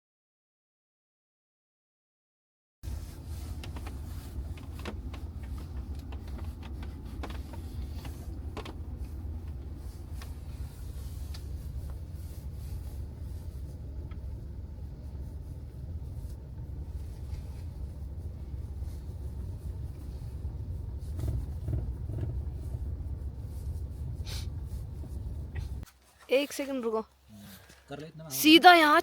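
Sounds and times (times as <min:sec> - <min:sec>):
car road and engine rumble: 0:02.8 - 0:29.0
clicks and rattles in car: 0:02.9 - 0:25.8.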